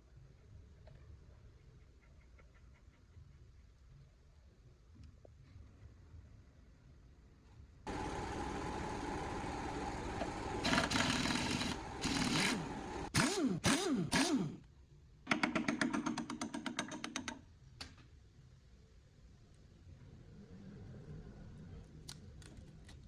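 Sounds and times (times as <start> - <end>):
air tool hammering rattle: 7.9 - 14.6
power tool motor revving: 7.9 - 14.6.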